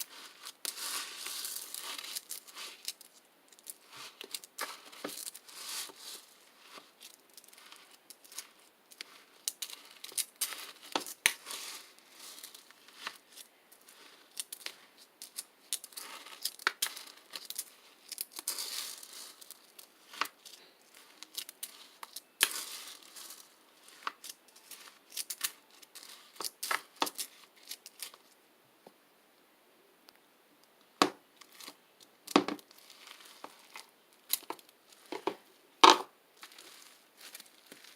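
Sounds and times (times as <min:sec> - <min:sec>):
slime clicking and crackling: 0:00.0 - 0:28.2.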